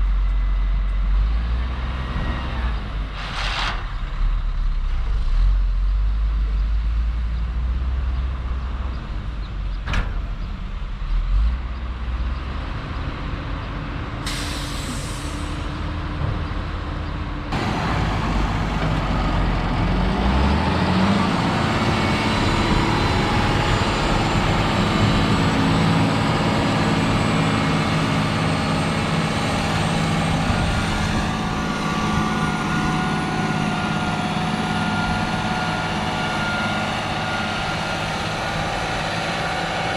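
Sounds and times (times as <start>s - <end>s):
truck engine running: 13.1s - 39.9s
air brake hiss: 14.2s - 15.6s
heavy machine running: 14.2s - 39.9s.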